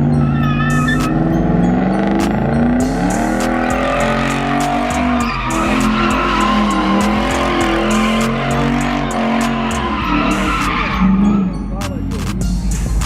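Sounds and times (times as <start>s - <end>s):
tyres squealing: 0.0s - 1.3s, 3.0s - 11.9s
car engine revving: 0.0s - 13.0s.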